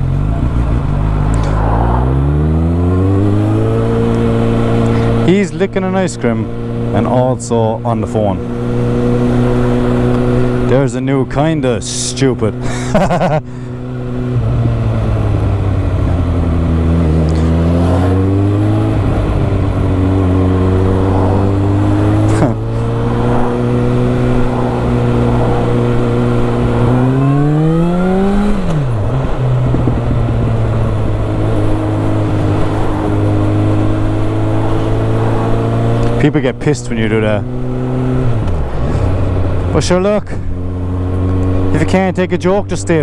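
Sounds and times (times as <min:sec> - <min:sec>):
motorcycle engine running: 0:00.0 - 0:43.0
wind noise: 0:18.5 - 0:35.8.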